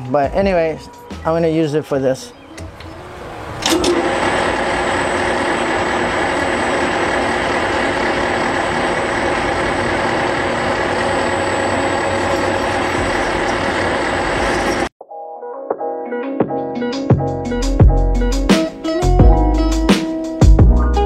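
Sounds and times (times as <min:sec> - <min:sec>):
metal lathe whining: 0:02.6 - 0:14.9.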